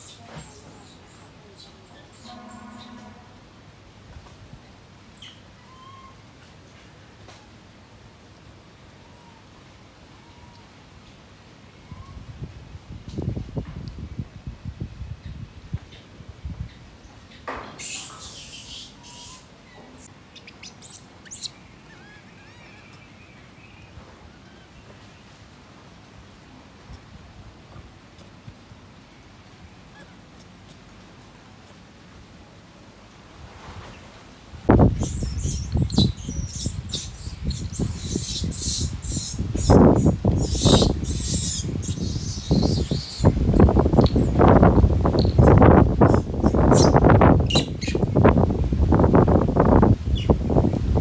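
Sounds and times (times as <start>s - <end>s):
small animal chirping: 17.8s - 19.5s, 20.4s - 23.1s, 35.0s - 44.3s.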